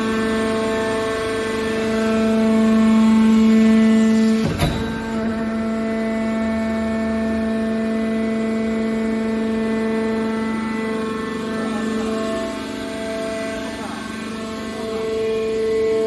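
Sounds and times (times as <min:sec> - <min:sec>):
machine whine: 0:00.0 - 0:16.0
sharp knock: 0:04.4 - 0:05.8.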